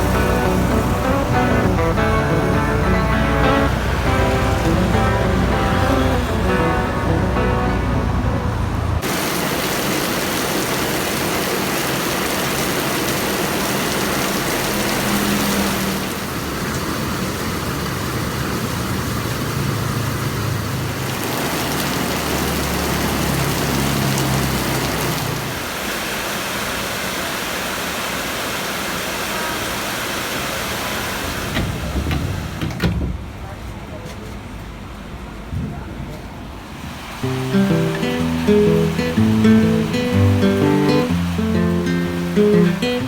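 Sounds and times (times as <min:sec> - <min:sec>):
vehicle engine droning: 0:00.0 - 0:09.0, 0:37.2 - 0:43.0
heavy rain hissing: 0:00.0 - 0:31.5, 0:36.7 - 0:43.0.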